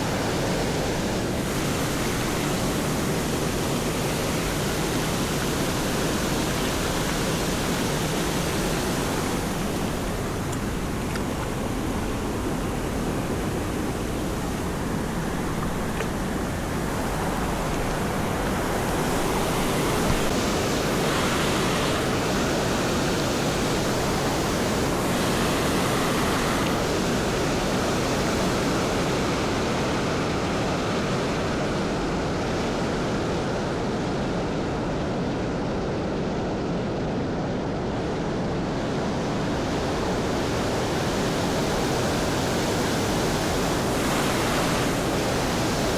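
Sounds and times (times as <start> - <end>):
waterfall rushing: 0.0 - 30.5.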